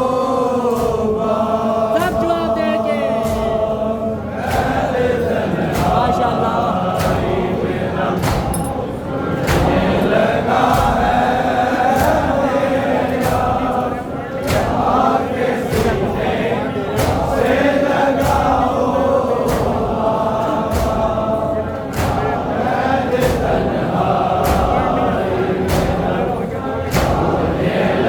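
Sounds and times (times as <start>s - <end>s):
men chanting together: 0.0s - 28.0s
chest-beating strikes: 2.0s - 3.8s.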